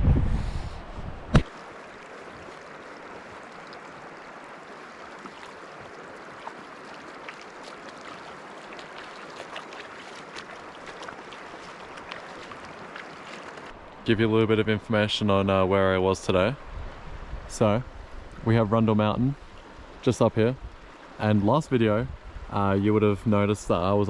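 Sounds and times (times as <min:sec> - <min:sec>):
river water rushing: 0:01.4 - 0:14.0.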